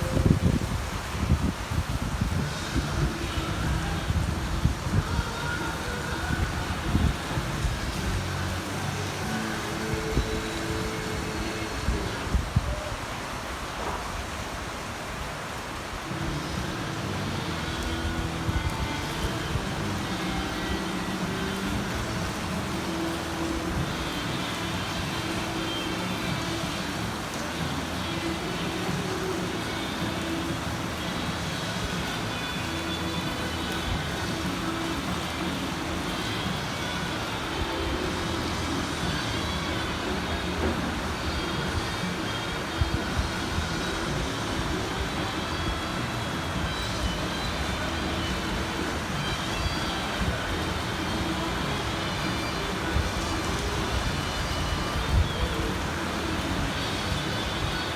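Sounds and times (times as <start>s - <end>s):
heavy rain pouring: 0.0s - 57.9s.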